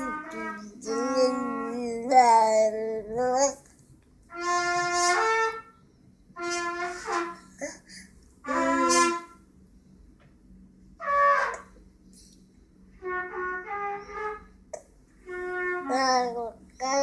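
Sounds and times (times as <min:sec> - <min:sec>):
baby babbling: 0:00.0 - 0:03.6, 0:15.8 - 0:17.0.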